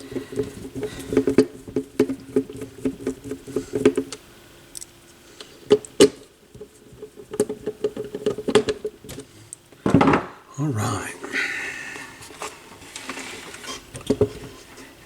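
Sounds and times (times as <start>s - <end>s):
faint hum: 10.5s - 12.8s.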